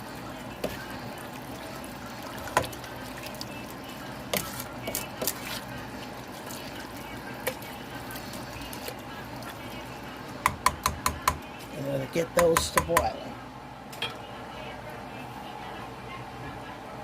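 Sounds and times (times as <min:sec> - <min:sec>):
water sloshing in a pot: 0:00.0 - 0:11.1
spoon knocking against pot: 0:10.4 - 0:11.4, 0:12.4 - 0:13.2.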